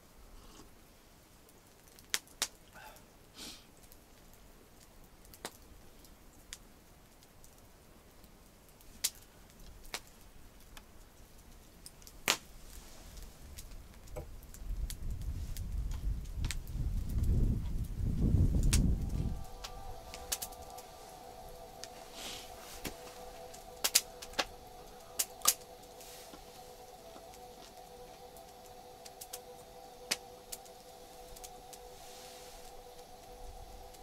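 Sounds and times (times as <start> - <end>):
campfire crackling pops: 1.4 - 34.0
low rumble: 15.1 - 34.0.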